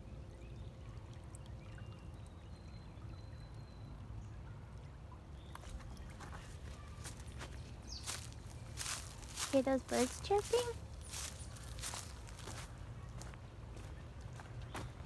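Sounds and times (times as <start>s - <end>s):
stream trickling: 0.0s - 15.0s
faint bird chirps: 5.4s - 14.0s
crunching footsteps: 5.6s - 15.0s.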